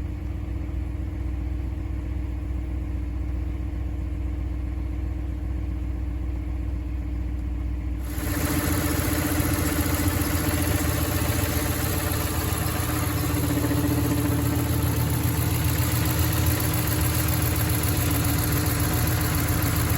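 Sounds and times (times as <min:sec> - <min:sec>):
engine idling: 0:00.0 - 0:19.9.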